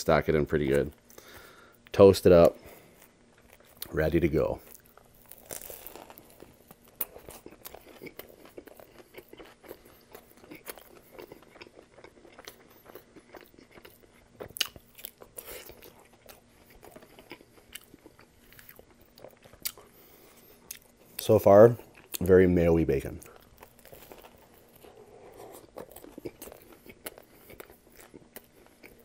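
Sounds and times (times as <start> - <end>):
wet chewing with crunches: 2.8 - 4.0, 4.6 - 29.0
biting crisp toasted crust: 3.0 - 21.0, 21.8 - 29.0.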